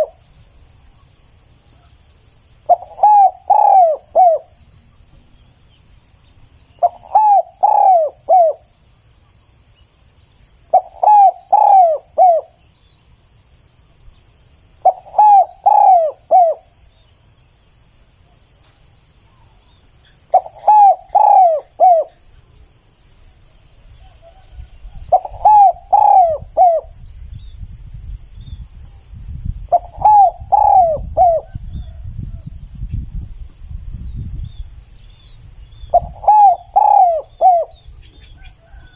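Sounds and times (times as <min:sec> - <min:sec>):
dove cooing: 0:00.0 - 0:00.2, 0:02.7 - 0:04.5, 0:06.8 - 0:08.7, 0:10.7 - 0:12.6, 0:14.8 - 0:16.7, 0:20.3 - 0:22.2, 0:24.0 - 0:26.9, 0:29.7 - 0:32.0, 0:35.9 - 0:38.9
insects trilling: 0:00.0 - 0:38.9.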